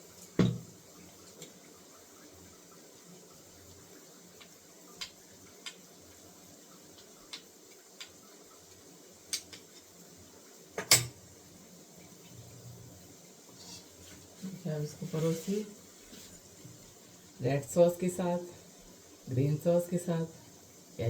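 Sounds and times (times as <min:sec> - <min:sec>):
dishes clattering: 0:10.8 - 0:11.2
utensils and dishes clinking: 0:10.8 - 0:11.2.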